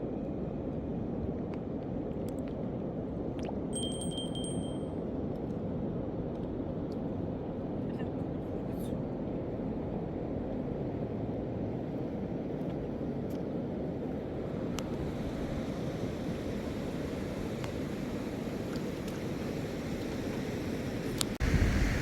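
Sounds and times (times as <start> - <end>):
high metallic ring: 3.8 - 5.0
floodwater rushing: 14.6 - 22.0.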